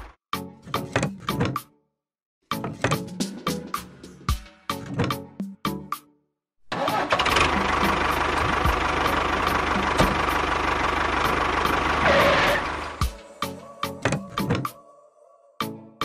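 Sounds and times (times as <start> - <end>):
engine starting and running: 6.7 - 13.1.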